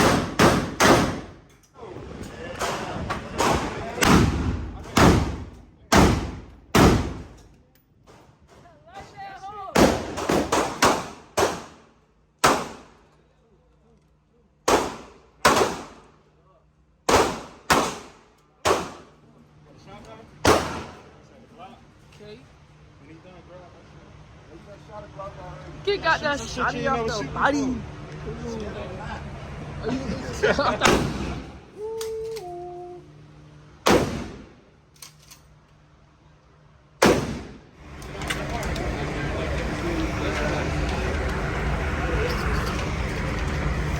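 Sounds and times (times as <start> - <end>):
gunshots with echo: 0.0 - 1.3
gunshots with ringing tail: 33.9 - 34.6, 37.0 - 37.6.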